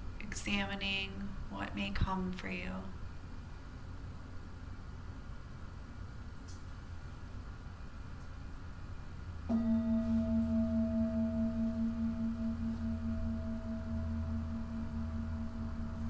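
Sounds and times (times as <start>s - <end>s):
low steady hum: 0.0s - 16.0s
singing bowl ringing: 9.5s - 16.0s.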